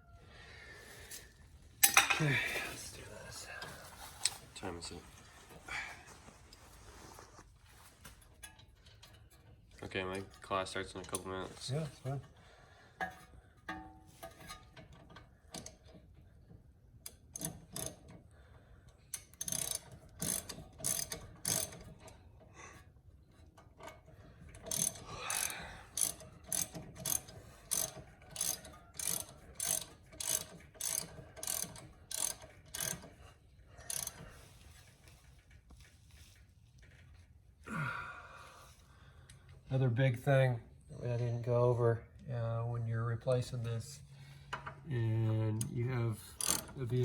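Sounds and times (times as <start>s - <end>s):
ratchet wrench clicking: 17.1s - 18.1s, 19.1s - 22.1s, 23.8s - 34.7s, 45.6s - 47.0s.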